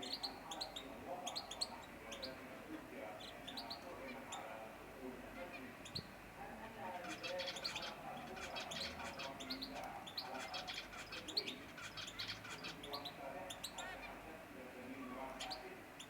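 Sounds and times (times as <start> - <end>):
canaries chirping: 0.0 - 15.8.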